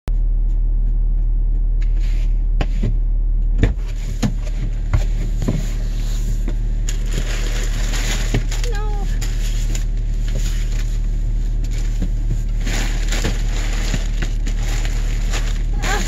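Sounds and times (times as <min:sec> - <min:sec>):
low mechanical hum: 0:00.1 - 0:16.0.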